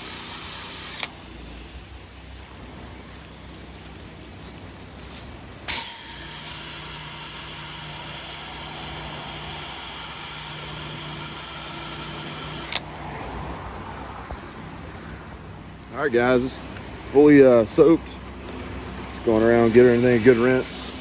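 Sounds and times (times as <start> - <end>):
pressure washer water jet hissing: 0.0 - 2.5, 5.7 - 13.1
engine running under load: 0.0 - 21.0.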